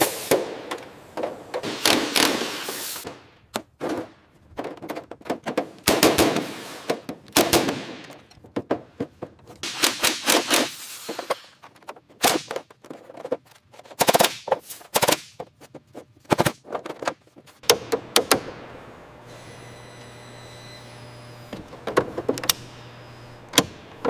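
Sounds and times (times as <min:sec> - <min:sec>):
bursts of sharp rapid impacts: 0:09.6 - 0:11.6, 0:13.8 - 0:15.6.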